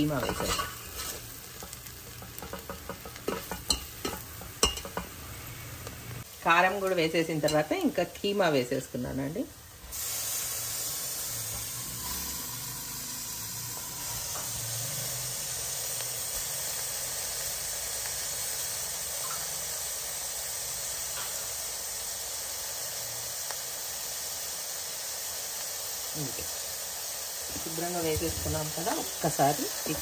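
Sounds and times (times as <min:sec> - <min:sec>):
minced meat sizzling in oil: 0:00.0 - 0:30.0.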